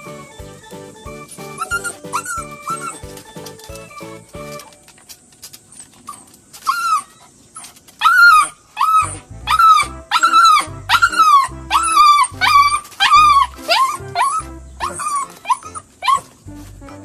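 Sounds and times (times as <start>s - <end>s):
music with bass beat: 0.0s - 4.6s.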